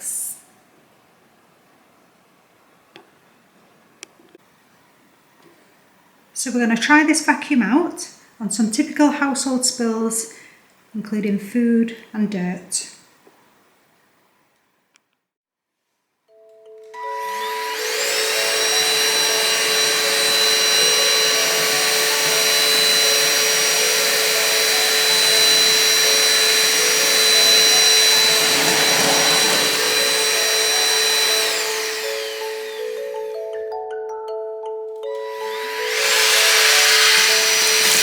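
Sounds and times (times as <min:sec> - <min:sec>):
vacuum motor whine: 0:17.0 - 0:33.4, 0:35.2 - 0:38.0.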